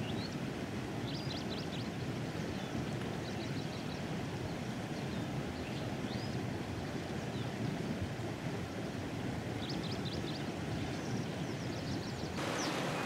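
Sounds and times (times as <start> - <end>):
small birds chirping: 11.0 - 13.0.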